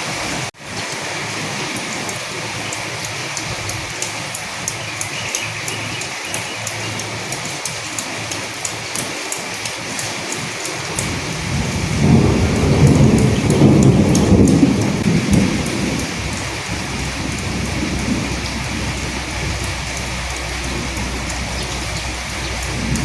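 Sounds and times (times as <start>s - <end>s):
steady rain: 0.0s - 23.0s
thunder rolling: 10.9s - 23.0s.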